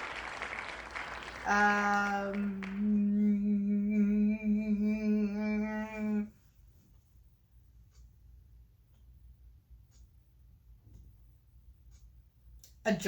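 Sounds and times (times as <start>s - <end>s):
person humming long note: 1.5s - 6.3s.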